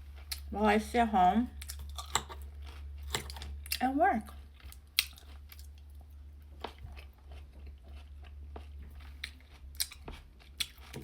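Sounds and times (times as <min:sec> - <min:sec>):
chewing sandwich: 0:01.6 - 0:11.0.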